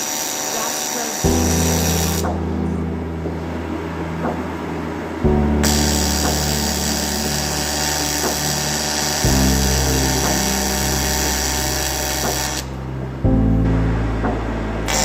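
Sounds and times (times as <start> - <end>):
welding arc buzzing hiss: 0.0 - 2.5, 5.5 - 13.0
background music with chords: 1.2 - 15.0.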